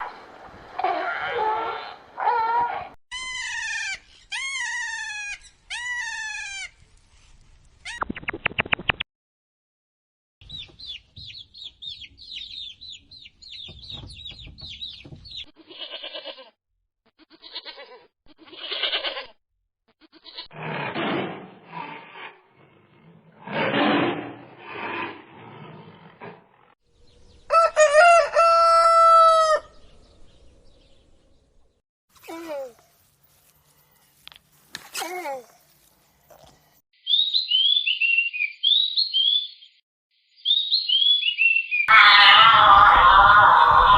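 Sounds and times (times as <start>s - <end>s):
animal crying: 0.8s - 6.7s, 41.9s - 43.9s
rooster crowing: 27.5s - 29.8s, 41.9s - 43.9s.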